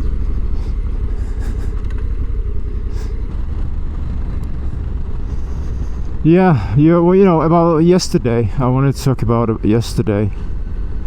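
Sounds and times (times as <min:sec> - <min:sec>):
wind noise: 0:00.0 - 0:07.1
motorcycle engine rumble: 0:00.0 - 0:11.0.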